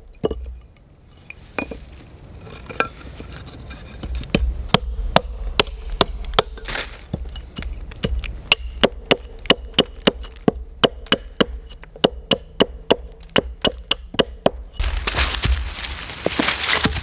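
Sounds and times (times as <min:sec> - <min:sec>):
blade chopping on wood: 0:04.0 - 0:17.0
loud hissing crackle: 0:14.8 - 0:17.0.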